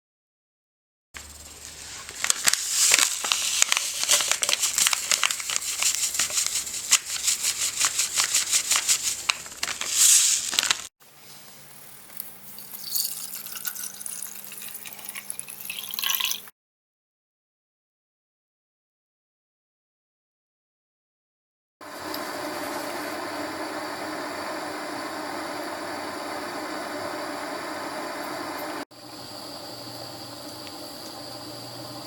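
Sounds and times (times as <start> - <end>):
wet scrubbing: 1.7 - 10.9.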